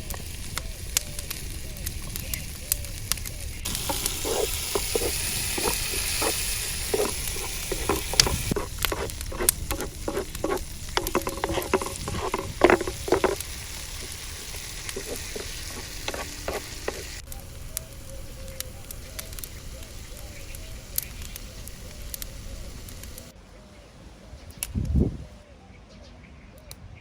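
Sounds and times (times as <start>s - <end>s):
food sizzling in a pan: 0.0s - 23.3s
utensil knocking against pan: 3.7s - 17.2s.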